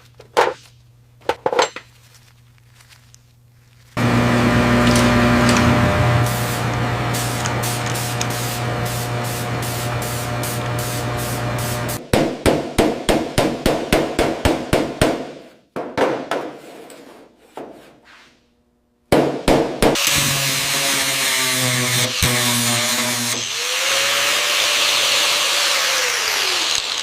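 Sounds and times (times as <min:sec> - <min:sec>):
machine hum: 0:04.0 - 0:12.0.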